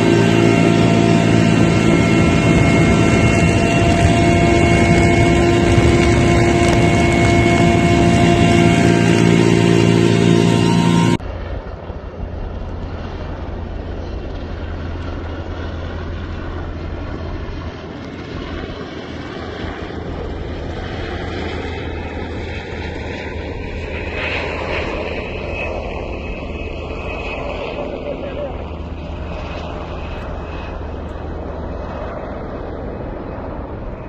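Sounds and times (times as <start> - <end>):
faint rising tone: 0.0 - 11.2
aircraft engine droning overhead: 0.0 - 34.0.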